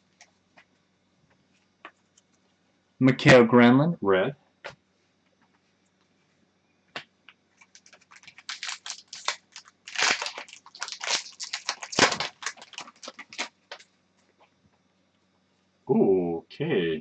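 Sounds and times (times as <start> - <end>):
plastic wrapper crinkling and tearing: 7.6 - 13.9.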